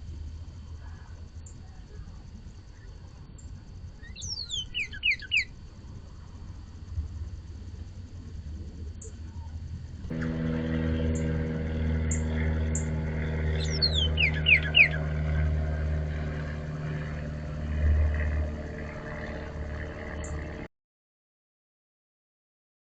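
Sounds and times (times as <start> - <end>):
low engine-like hum: 0.0 - 20.7
cardinal whistling song: 4.0 - 5.5, 13.4 - 15.2
high chip notes: 10.1 - 16.0.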